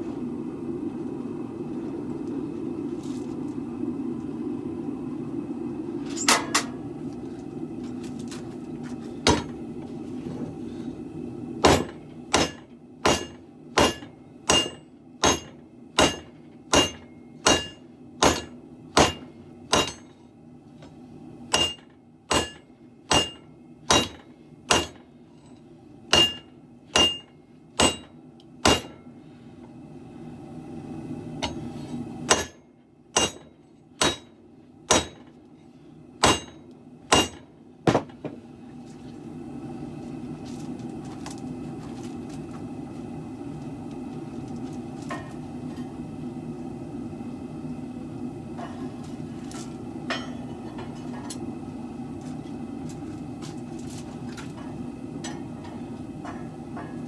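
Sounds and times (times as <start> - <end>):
steady low rumble: 0.0 - 12.3
hammer ringing on sword blade: 19.8 - 20.0.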